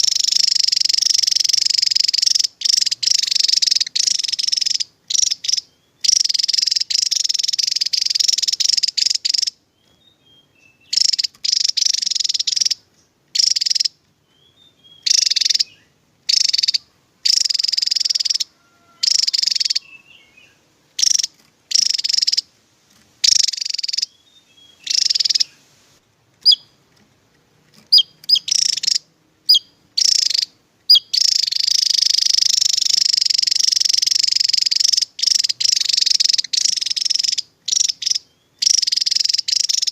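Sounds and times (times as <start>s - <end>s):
bird singing rapid high song: 0.0s - 39.9s
short sharp bird chirps: 23.2s - 26.8s, 27.8s - 39.9s.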